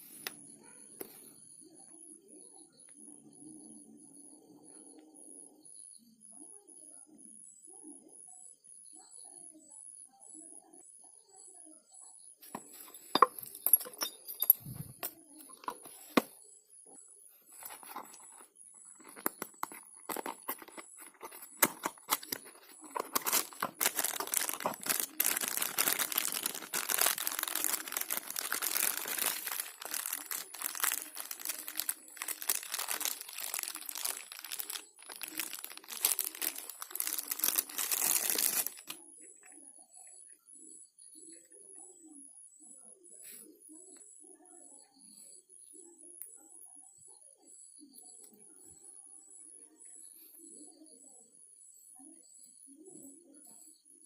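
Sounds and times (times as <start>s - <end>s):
scratchy rubbing and crinkling: 17.5s - 39.0s.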